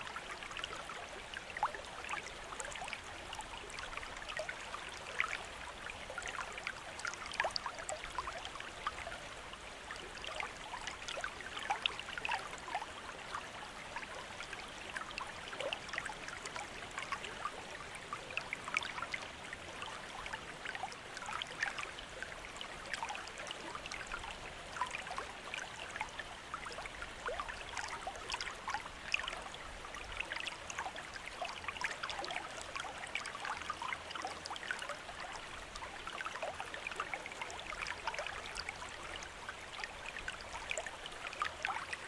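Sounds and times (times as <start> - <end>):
small water splashes and plinks: 0.0 - 42.0.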